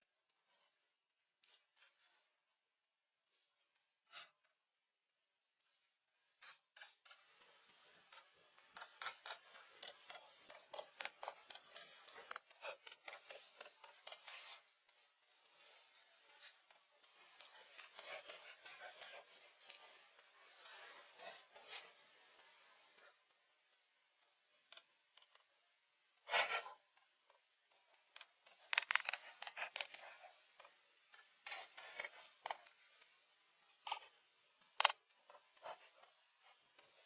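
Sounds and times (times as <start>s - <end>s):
faint scraping and crackling strokes: 5.6s - 23.4s, 26.2s - 37.0s.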